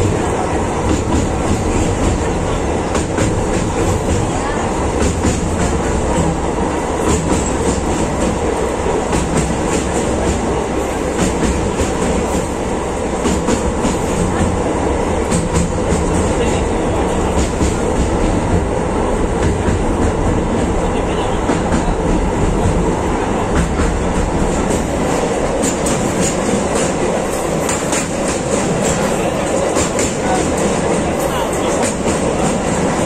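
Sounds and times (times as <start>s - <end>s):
train wheels rumbling on rails: 0.0s - 33.0s
rail-joint clicks: 0.8s - 14.6s, 23.4s - 33.0s.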